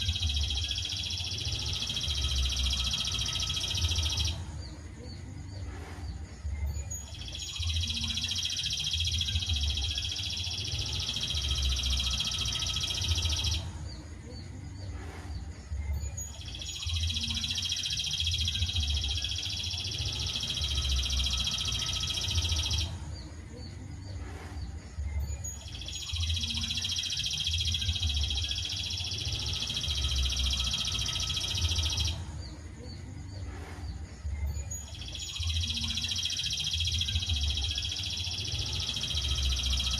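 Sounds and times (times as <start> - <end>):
songbird rapid high trill: 0.0 - 4.5, 6.8 - 13.7, 16.1 - 23.0, 25.4 - 32.3, 34.6 - 39.9.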